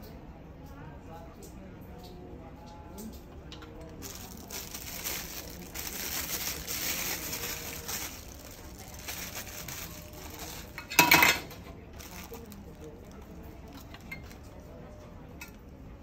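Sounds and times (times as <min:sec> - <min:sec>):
plastic packaging crinkling: 0:03.8 - 0:14.7.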